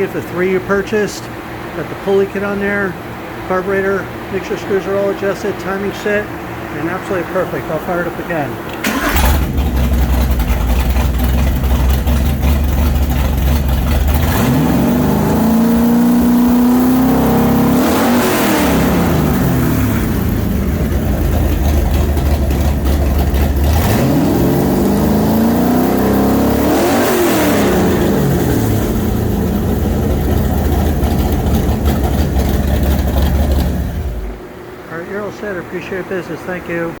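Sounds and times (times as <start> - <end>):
car engine idling and revving: 8.7 - 34.8.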